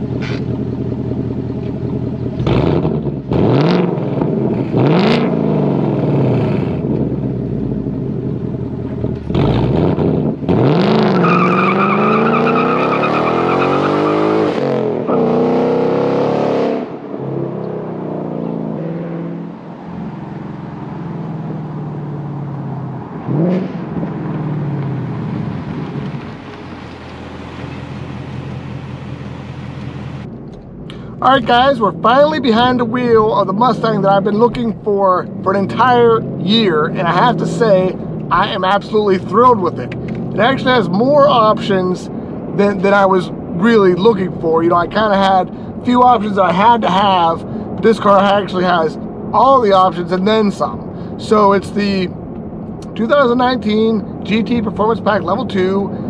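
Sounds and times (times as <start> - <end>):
car engine revving and accelerating: 2.3 - 30.3, 31.2 - 45.3.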